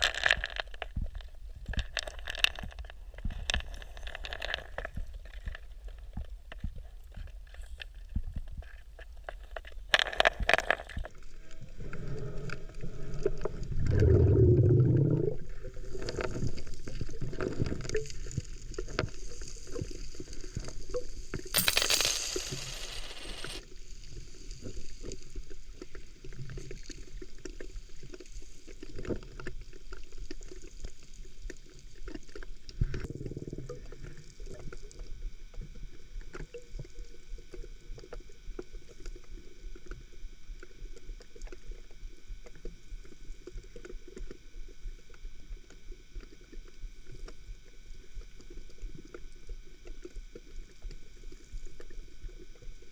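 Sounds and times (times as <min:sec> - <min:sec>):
water sloshing and gurgling: 0:11.8 - 0:18.4
hissing rush of bubbles: 0:13.1 - 0:17.3.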